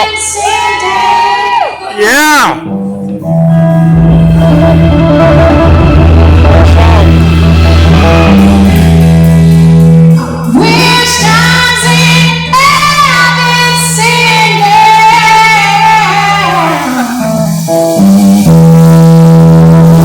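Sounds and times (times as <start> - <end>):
live rock band playing: 2.2 - 20.0
person singing long notes: 2.6 - 17.8.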